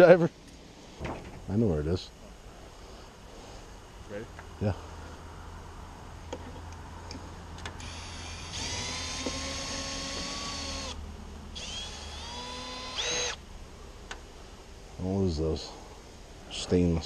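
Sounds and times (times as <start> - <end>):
power drill driving screws: 7.8 - 11.0, 11.6 - 13.4.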